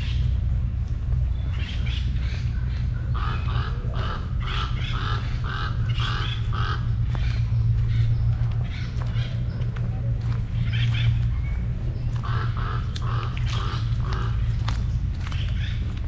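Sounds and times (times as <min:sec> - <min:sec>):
steady low rumble: 0:00.0 - 0:16.0
bird calling harsh notes: 0:01.4 - 0:09.4.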